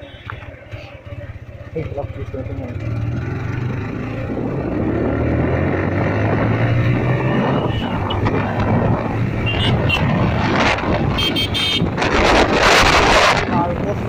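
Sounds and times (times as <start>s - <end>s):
motorcycle engine accelerating: 0.3s - 14.0s
wind on microphone: 4.1s - 14.0s.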